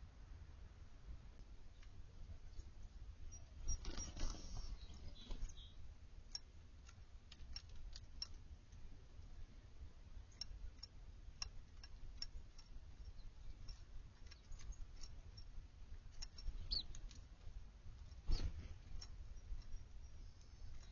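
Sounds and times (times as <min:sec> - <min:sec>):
birds pecking seed: 0:01.4 - 0:09.6, 0:10.2 - 0:20.9
high falling bird chirp: 0:02.4 - 0:05.8, 0:16.2 - 0:17.0.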